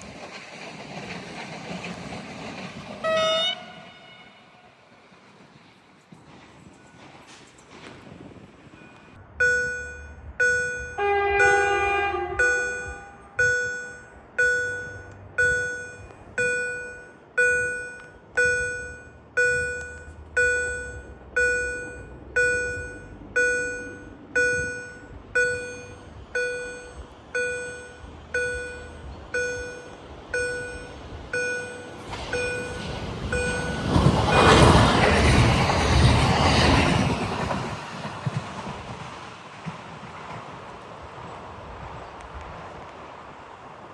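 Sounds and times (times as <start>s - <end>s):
passing train rushing: 0.0s - 43.9s
level crossing warning bell: 8.3s - 36.8s.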